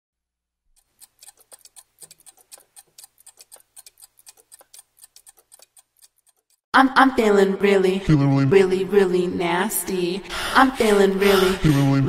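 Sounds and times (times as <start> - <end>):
quiet rapid ticking clicks: 0.8 - 6.7.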